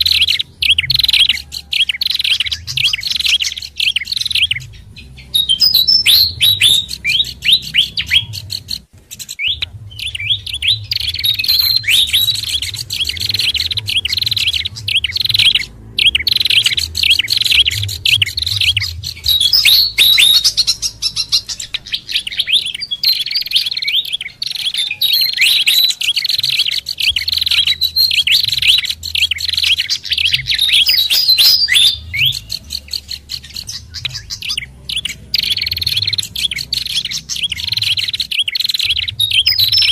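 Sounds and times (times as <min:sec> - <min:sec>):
low hum: 0:00.0 - 0:23.6
songbirds chirping rapidly: 0:00.0 - 0:39.9.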